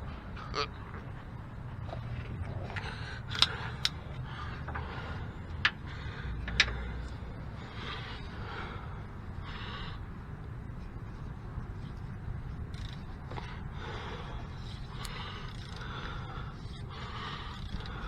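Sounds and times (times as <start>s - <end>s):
hand tool clicking on bolt: 3.3s - 4.0s.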